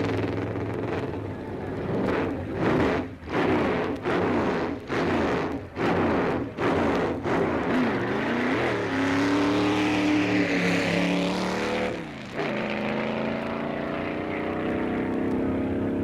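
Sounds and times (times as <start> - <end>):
racing car engine revving: 0.0 - 16.0.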